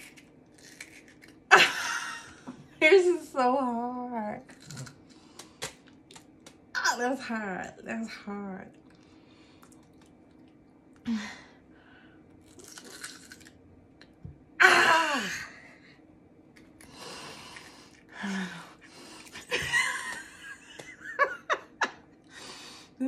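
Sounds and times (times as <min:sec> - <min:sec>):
crunching and chewing: 0:00.0 - 0:01.5, 0:04.5 - 0:06.6, 0:08.7 - 0:11.0, 0:12.3 - 0:14.2.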